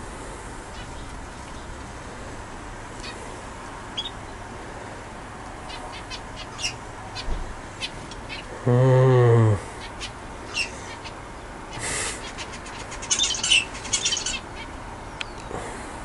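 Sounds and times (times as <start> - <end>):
budgerigars chirping: 4.0 - 4.2, 5.6 - 8.5, 9.8 - 14.7.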